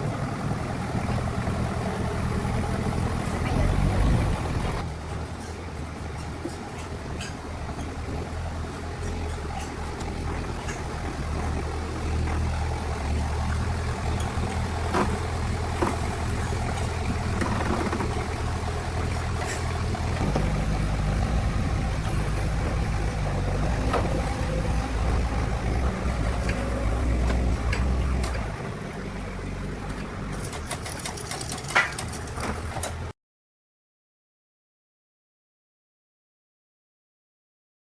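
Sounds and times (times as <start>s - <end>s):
motor running steadily: 8.2s - 28.6s
sharp clicks and knocks: 29.9s - 33.0s.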